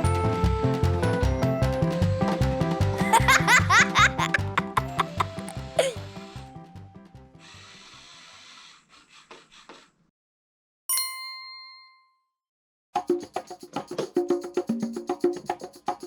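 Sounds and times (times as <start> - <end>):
background music: 0.0 - 7.4
bright bell-like ding: 10.9 - 12.2.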